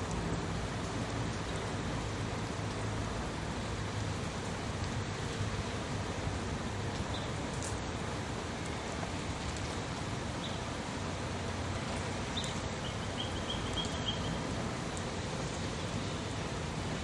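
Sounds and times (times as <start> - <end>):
small bird chirping: 12.3 - 14.4.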